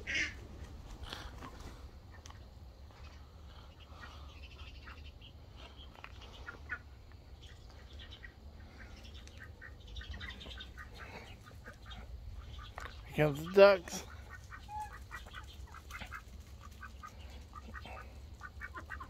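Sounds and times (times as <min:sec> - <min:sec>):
steady low rumble: 0:00.0 - 0:19.0
faint bird calls and chirps: 0:00.9 - 0:19.0.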